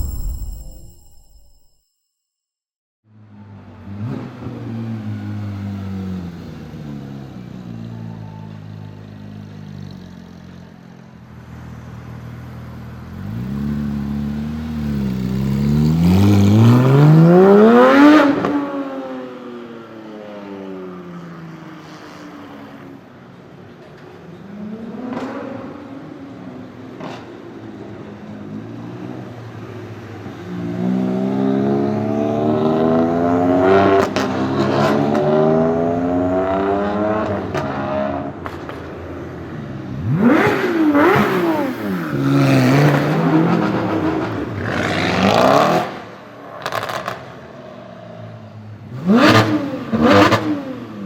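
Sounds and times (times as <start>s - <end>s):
sports car engine revving: 39.9s - 46.0s, 48.9s - 51.0s.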